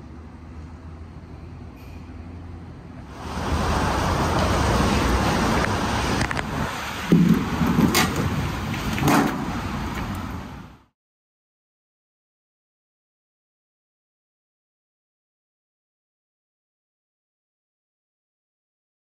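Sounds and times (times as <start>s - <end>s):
street traffic noise: 0.0s - 10.9s.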